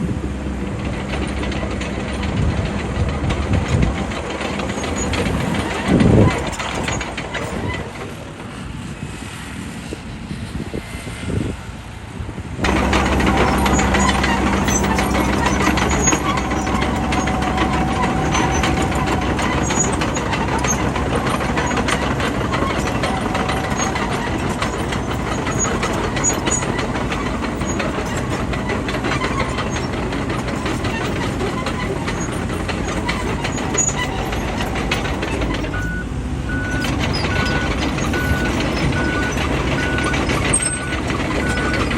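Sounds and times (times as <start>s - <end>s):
bulldozer diesel engine: 0.0s - 11.0s, 11.7s - 41.9s
reversing alarm beeping: 35.7s - 41.9s.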